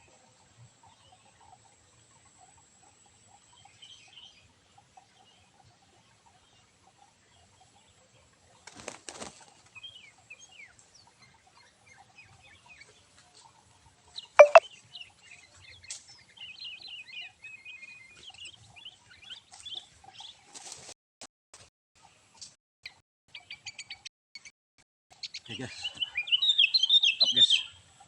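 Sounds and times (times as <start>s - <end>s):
small birds chirping: 3.3s - 20.5s, 25.1s - 28.0s
wing fluttering: 8.6s - 9.8s.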